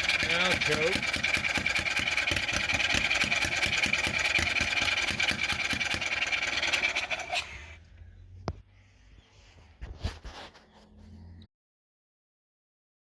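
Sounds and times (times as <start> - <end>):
engine cranking: 0.0 - 7.8.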